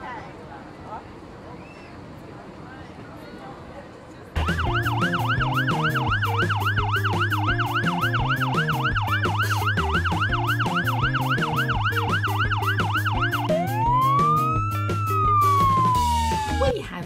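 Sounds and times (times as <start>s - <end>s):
electronic siren warbling: 4.4s - 16.8s
background music with bass beat: 4.4s - 17.0s.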